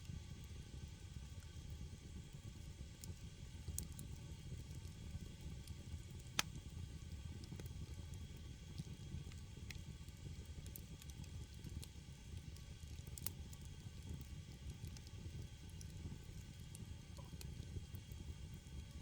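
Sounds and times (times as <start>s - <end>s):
firewood crackling and popping: 2.9s - 19.0s.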